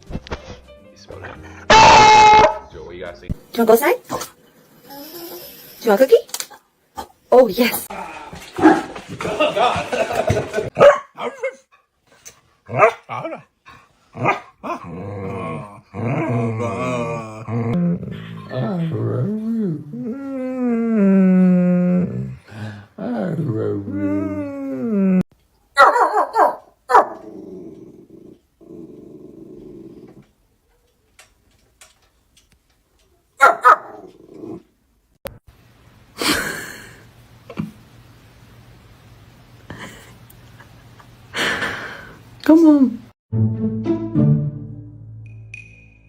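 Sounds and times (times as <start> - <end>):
dog barking: 1.7 - 2.7, 8.6 - 8.9, 10.8 - 11.6, 12.7 - 13.4, 14.2 - 14.8, 25.8 - 27.2, 33.4 - 34.0
dog growling low: 14.2 - 25.2, 27.2 - 30.3, 33.9 - 34.7.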